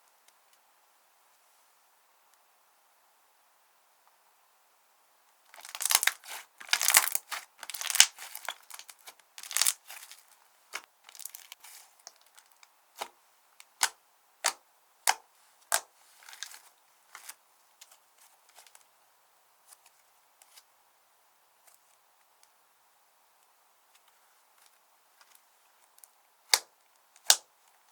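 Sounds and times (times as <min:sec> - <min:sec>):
slime crackling and popping: 0:05.5 - 0:13.1.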